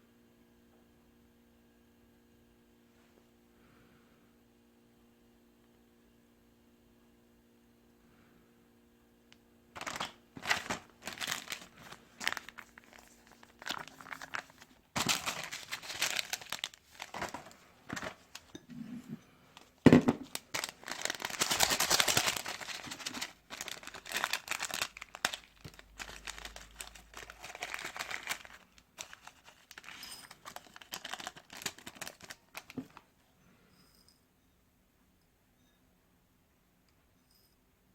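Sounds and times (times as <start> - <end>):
plastic packaging crinkling: 9.8 - 18.6, 19.6 - 33.1.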